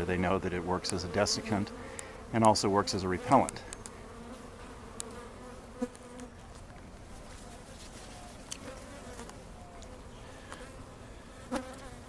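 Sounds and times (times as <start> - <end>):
bees passing close humming: 0.0 - 12.0
swarm of bees buzzing: 0.0 - 12.0.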